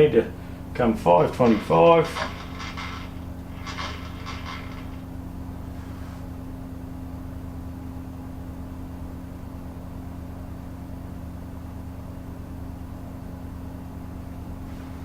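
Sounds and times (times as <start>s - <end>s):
electric motor hum: 0.3s - 5.4s.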